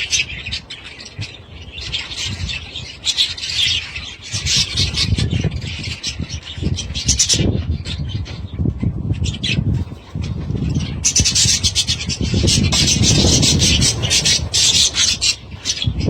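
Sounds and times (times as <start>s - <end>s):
budgerigars chattering and squawking: 10.6s - 16.0s
low rumbling noise: 12.2s - 16.0s.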